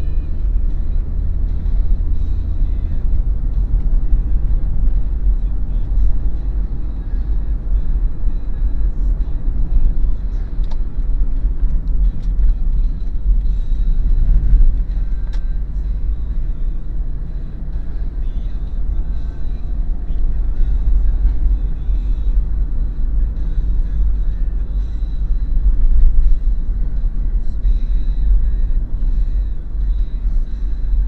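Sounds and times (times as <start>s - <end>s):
car cabin road rumble: 0.0s - 31.0s.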